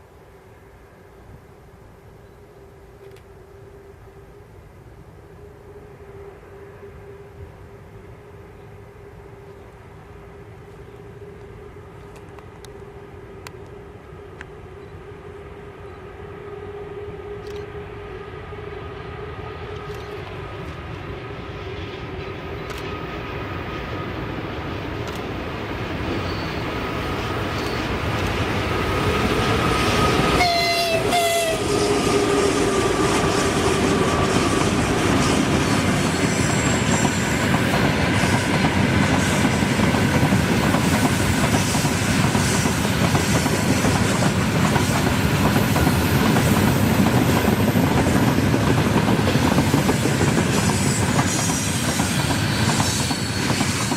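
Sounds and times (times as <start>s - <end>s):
train passing: 0.0s - 53.9s
train horn blast: 10.4s - 22.4s, 29.0s - 33.0s.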